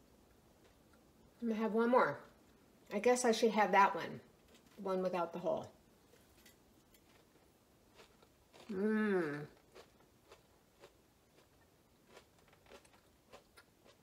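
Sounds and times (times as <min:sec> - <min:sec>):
onion ring crunching: 0:06.5 - 0:14.0
person humming: 0:08.7 - 0:09.5.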